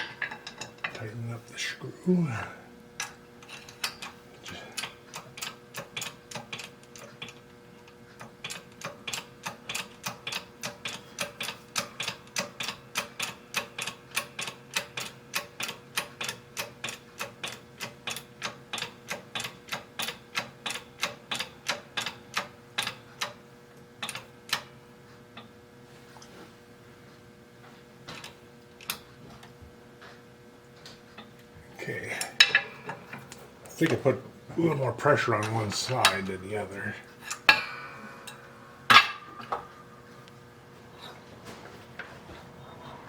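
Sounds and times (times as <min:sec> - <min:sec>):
sharp clicks of hand tool on metal: 0:04.8 - 0:07.4, 0:08.2 - 0:23.4, 0:24.0 - 0:24.7.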